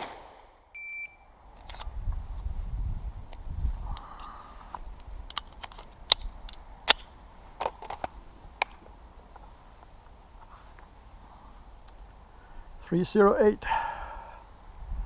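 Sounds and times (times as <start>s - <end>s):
pistol shots: 0.0s - 0.6s
shot timer beep: 0.8s - 1.2s.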